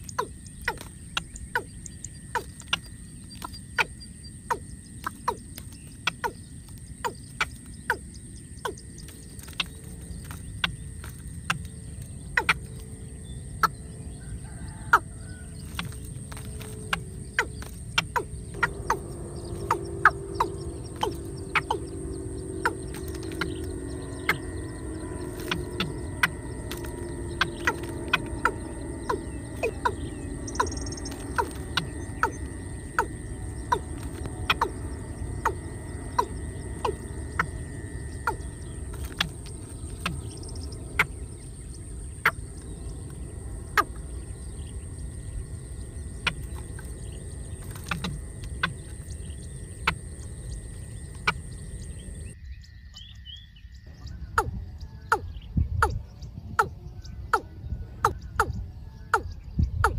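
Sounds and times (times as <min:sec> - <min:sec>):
bird giving sharp calls: 0:00.0 - 0:11.6, 0:12.2 - 0:13.0, 0:14.5 - 0:52.3
low hum: 0:00.0 - 0:59.9.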